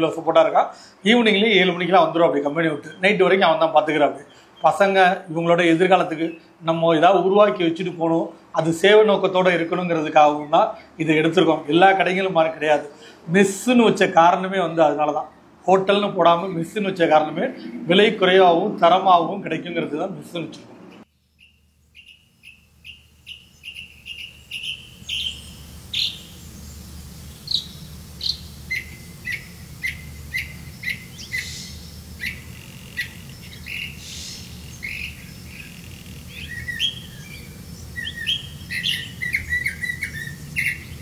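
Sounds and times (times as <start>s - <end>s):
low steady hum: 15.2s - 41.0s
small bird chirping: 20.9s - 41.0s.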